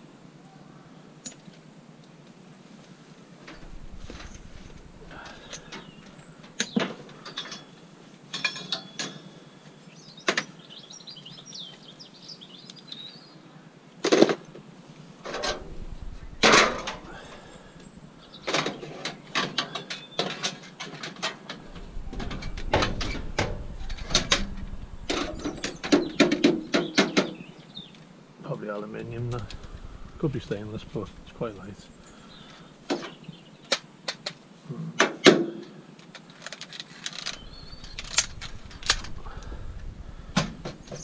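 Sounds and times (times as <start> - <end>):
bird chirping: 3.5 - 7.8, 8.4 - 13.5, 15.6 - 19.0, 21.6 - 28.0, 29.0 - 33.7, 37.1 - 41.0.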